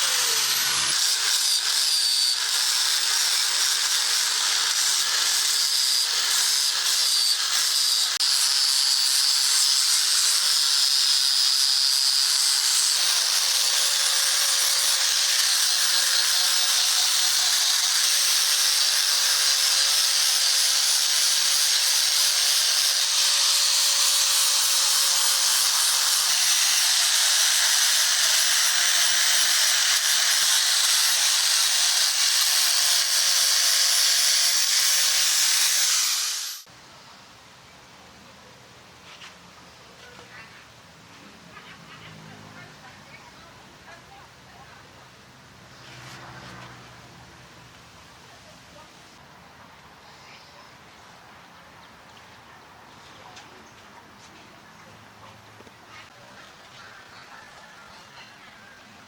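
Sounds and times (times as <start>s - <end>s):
grinder grinding steel blade: 0.0s - 36.7s.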